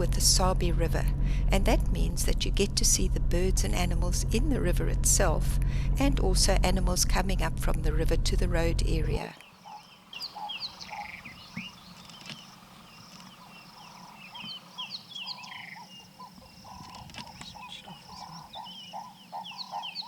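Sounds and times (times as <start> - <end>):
birds chirping: 8.9 - 20.0
repeated short lower bird calls: 9.2 - 20.0.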